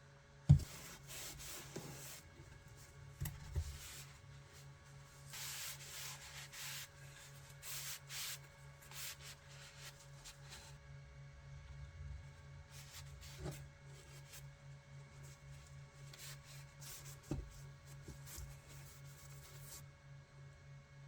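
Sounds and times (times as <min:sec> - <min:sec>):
hand sanding strokes: 0:05.1 - 0:10.7.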